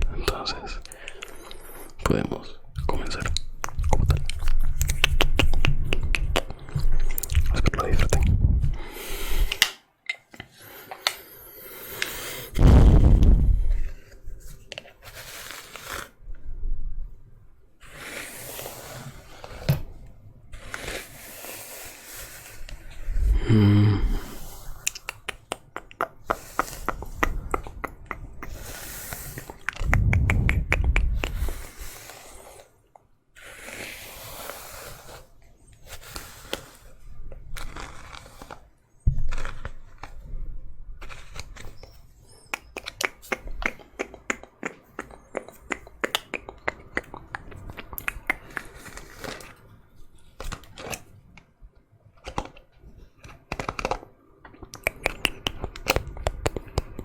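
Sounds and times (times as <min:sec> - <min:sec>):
low rumbling handling noise: 0:12.6 - 0:14.0, 0:29.8 - 0:31.6.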